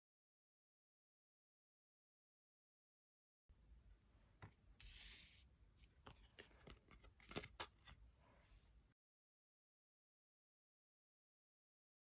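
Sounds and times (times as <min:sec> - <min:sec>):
cards sliding rustle: 0:04.8 - 0:08.0.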